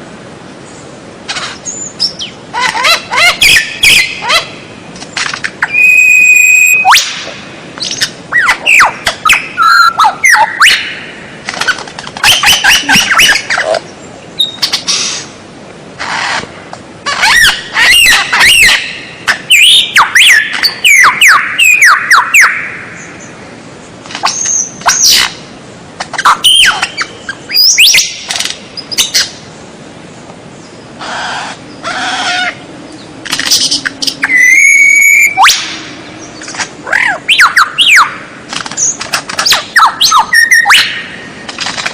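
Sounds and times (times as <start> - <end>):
songbird whistling and chattering: 1.6 - 4.5, 5.6 - 11.0, 12.2 - 13.7, 14.4 - 15.2, 17.1 - 23.1, 26.1 - 29.3, 33.4 - 38.2, 38.8 - 41.1.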